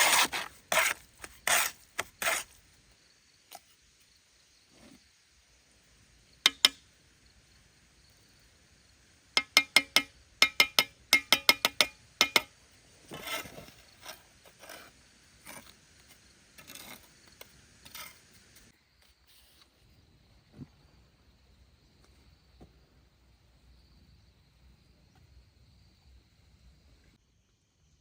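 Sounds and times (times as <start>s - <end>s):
sharp ringing knocks: 9.4s - 12.5s.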